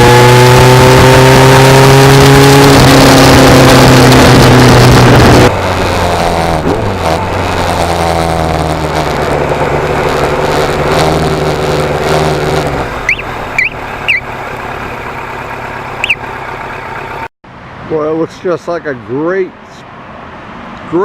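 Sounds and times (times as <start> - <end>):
motorcycle engine idling: 12.9 - 17.3
short high chirps: 13.0 - 14.3, 16.0 - 16.3.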